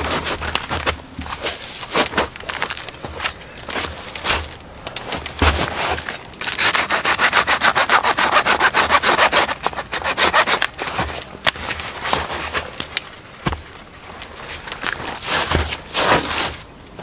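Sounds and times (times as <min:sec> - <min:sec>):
hand saw sawing wood: 0:05.4 - 0:11.2.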